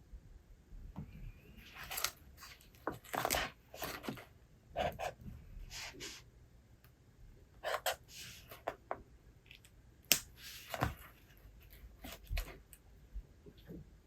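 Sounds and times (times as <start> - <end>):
book pages turning: 1.6 - 4.3, 10.1 - 12.7.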